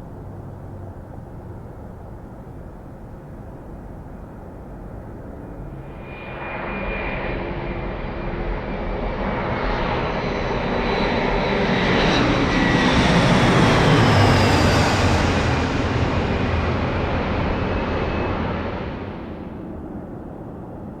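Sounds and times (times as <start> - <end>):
jet airliner passing: 4.4 - 21.0.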